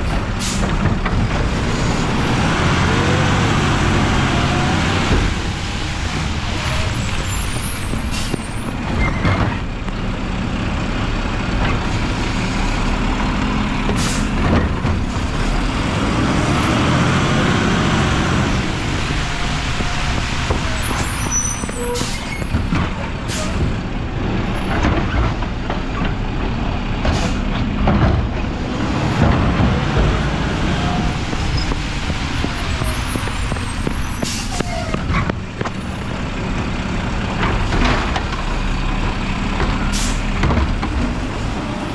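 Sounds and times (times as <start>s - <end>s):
truck diesel engine running: 0.0s - 41.9s
air brake hisses: 14.0s - 14.4s, 34.2s - 34.8s.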